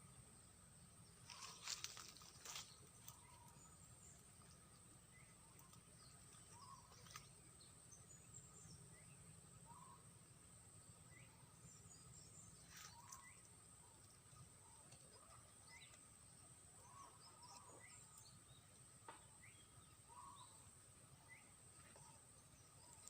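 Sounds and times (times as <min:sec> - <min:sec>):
high insect drone: 0:00.0 - 0:14.6
soft bird chirps: 0:00.9 - 0:23.0.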